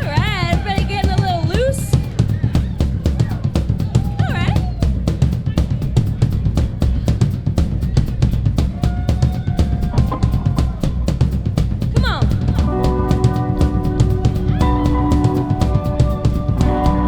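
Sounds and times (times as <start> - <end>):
live rock band playing: 12.6 - 17.0.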